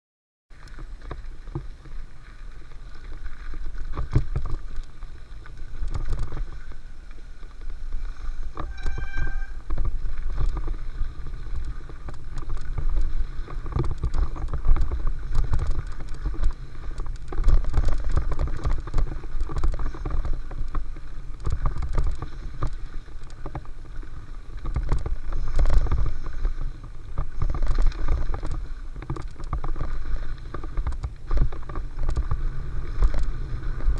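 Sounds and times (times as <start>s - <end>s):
bike rattling and clacking: 0.5s - 33.9s
rumble of wind and tyres: 0.5s - 33.9s
short high squeal: 8.4s - 9.7s.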